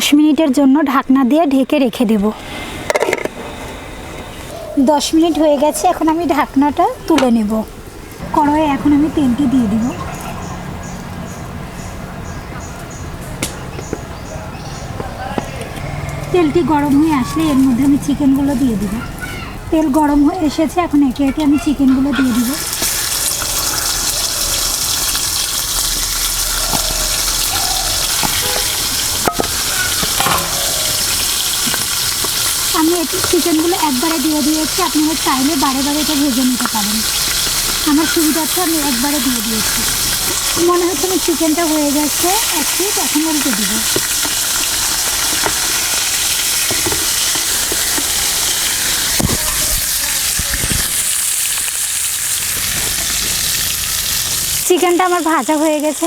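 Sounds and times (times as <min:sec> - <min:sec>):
chicken sizzling in hot oil: 0:16.2 - 0:56.0.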